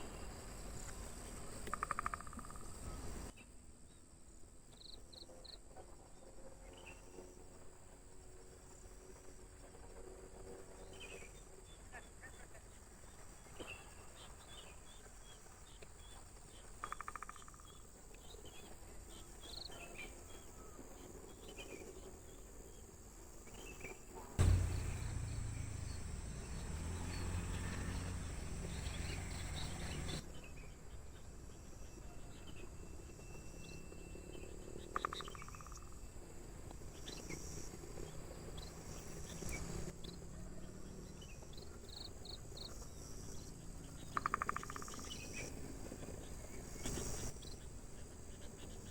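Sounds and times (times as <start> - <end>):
rapid trill: 24.4 - 27.1
bird chirps: 24.4 - 30.2
insects chirring: 24.4 - 30.2
loud low rumbling: 24.4 - 30.2.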